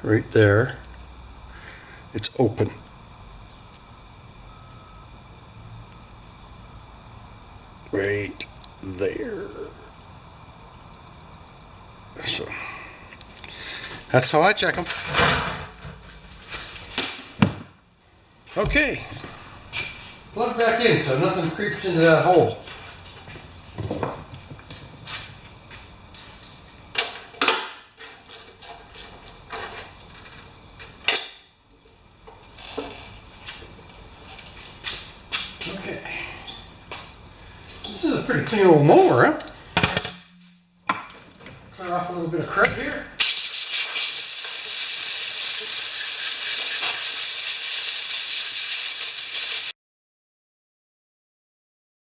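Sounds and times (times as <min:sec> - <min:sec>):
compressed air hissing: 0:43.2 - 0:49.7.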